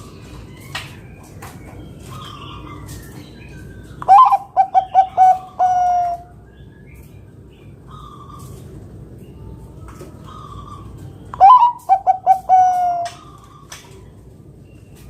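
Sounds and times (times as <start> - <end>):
dove cooing: 4.0 - 6.3, 10.2 - 13.4.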